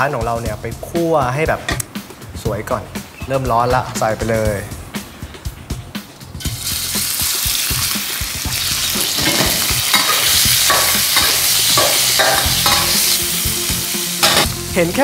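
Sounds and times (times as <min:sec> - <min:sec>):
pork sizzling in hot oil: 0:06.4 - 0:14.8
metal ladle scraping a wok: 0:08.6 - 0:13.2.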